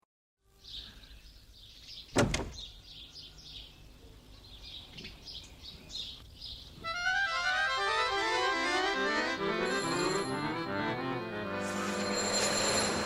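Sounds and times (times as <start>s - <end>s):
small birds chirping: 0.5s - 7.0s.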